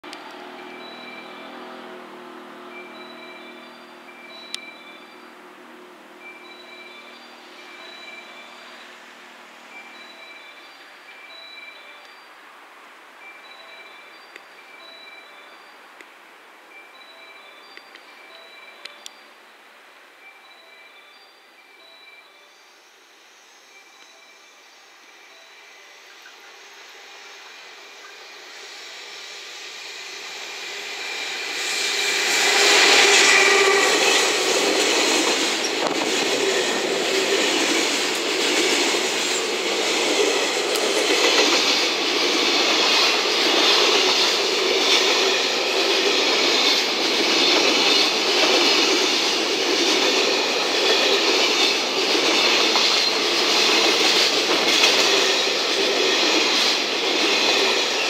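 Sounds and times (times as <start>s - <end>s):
electric locomotive passing: 0.0s - 58.0s
wheel-on-rail noise: 21.8s - 58.0s.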